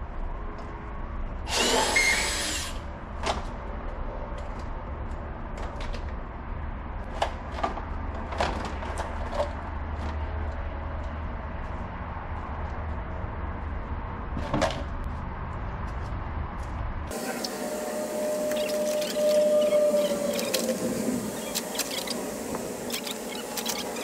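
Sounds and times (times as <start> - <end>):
power tool burst: 1.5 - 2.8
steady low hum: 15.0 - 24.0.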